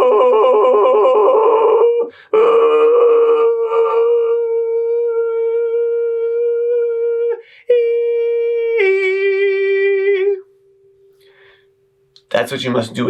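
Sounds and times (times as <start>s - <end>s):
breath: 11.2s - 11.8s.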